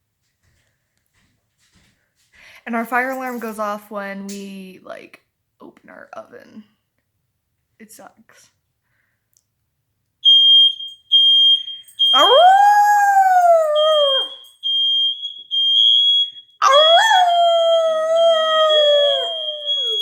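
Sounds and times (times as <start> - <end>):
smoke alarm beeping: 10.2 - 12.7, 13.6 - 17.0, 17.6 - 20.0
dog howling: 12.2 - 14.4, 16.6 - 20.0.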